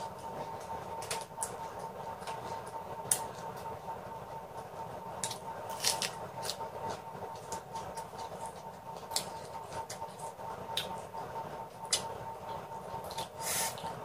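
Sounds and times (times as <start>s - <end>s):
faint steady hum: 0.0s - 14.0s
crunchy chewing: 5.2s - 11.1s.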